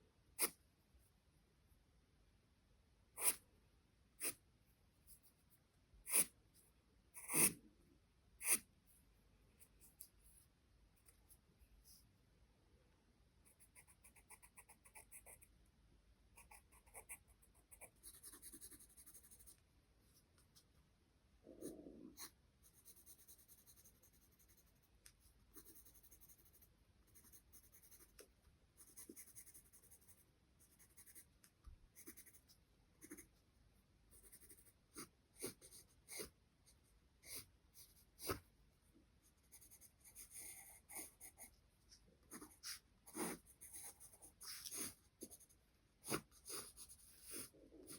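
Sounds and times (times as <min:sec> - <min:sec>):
charcoal pencil scratching paper: 0:03.2 - 0:03.4, 0:06.1 - 0:06.4, 0:07.2 - 0:07.6, 0:16.4 - 0:19.6, 0:22.1 - 0:24.9, 0:25.5 - 0:31.3, 0:32.0 - 0:33.3, 0:34.1 - 0:38.4, 0:39.4 - 0:47.9.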